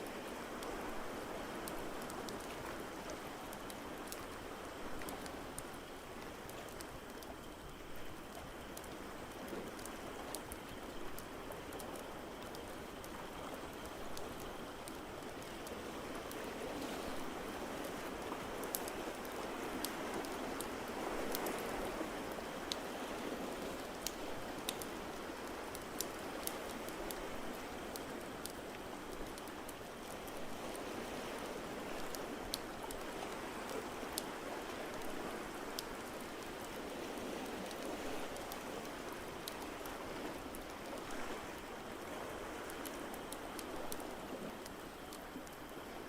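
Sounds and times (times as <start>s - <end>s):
wood fire crackling: 17.3s - 45.8s.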